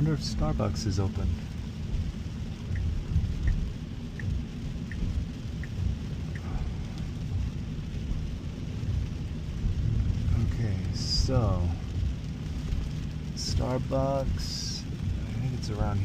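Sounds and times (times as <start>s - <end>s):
tyres and rain rumble: 0.0s - 16.0s
soft ticks: 2.7s - 6.5s.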